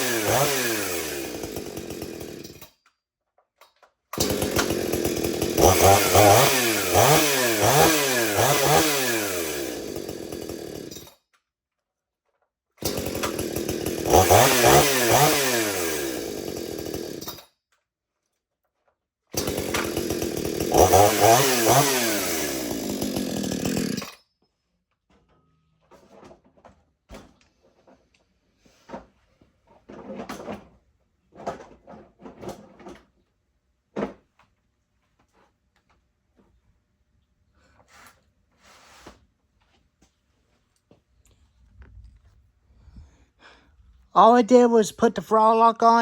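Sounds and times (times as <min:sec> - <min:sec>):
chainsaw engine revving: 0:00.0 - 0:02.6, 0:04.2 - 0:11.1, 0:12.8 - 0:17.4, 0:19.4 - 0:24.2.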